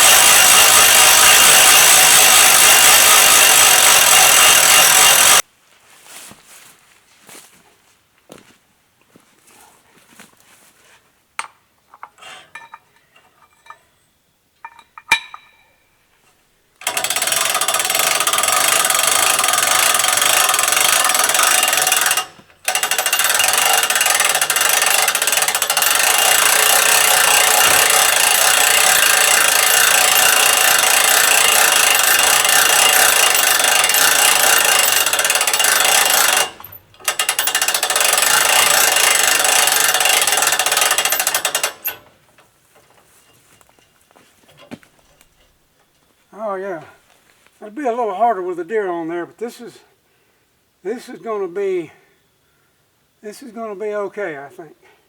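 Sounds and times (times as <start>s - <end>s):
winch running: 0.0s - 5.4s, 16.8s - 45.6s
clicks and knocks: 14.6s - 15.8s.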